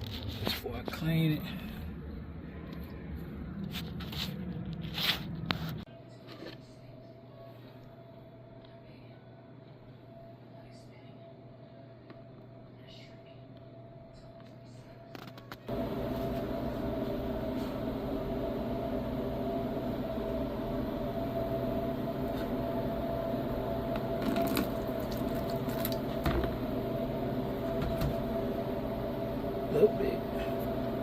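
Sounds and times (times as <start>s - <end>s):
steady machine hum: 15.7s - 31.0s.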